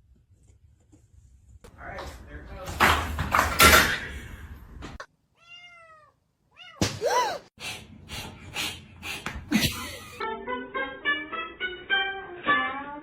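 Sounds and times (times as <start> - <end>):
cat meowing: 5.4 - 6.8.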